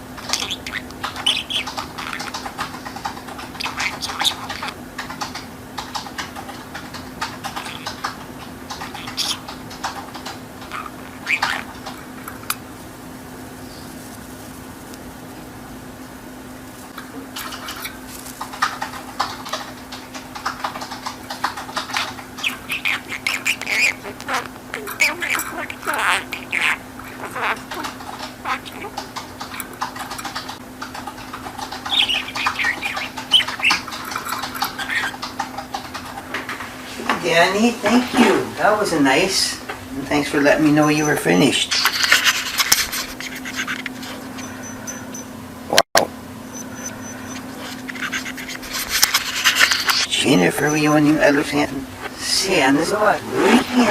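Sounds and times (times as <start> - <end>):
budgerigar chattering: 0.2 - 5.5, 7.4 - 12.6, 17.4 - 18.1, 21.4 - 30.6, 31.3 - 36.1, 40.2 - 45.3, 46.5 - 53.9
short chirp: 46.5 - 47.4.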